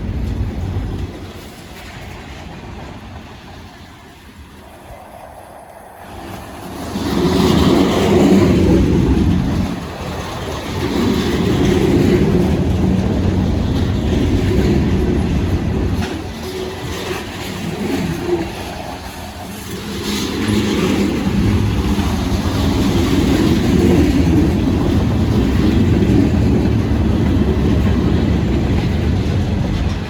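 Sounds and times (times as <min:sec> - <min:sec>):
diesel train rumbling past: 0:00.0 - 0:30.0.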